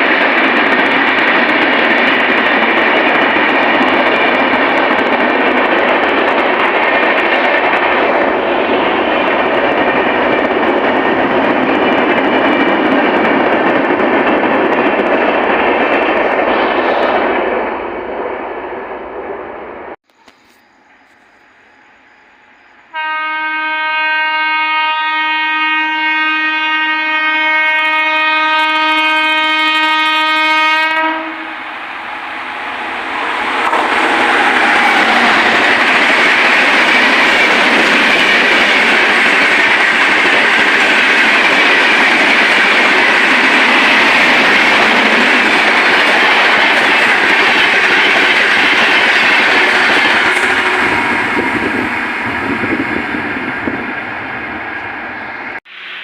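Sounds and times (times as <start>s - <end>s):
train wheels roaring on rail: 0.0s - 56.0s
train horn blast: 22.8s - 31.8s, 49.6s - 51.8s.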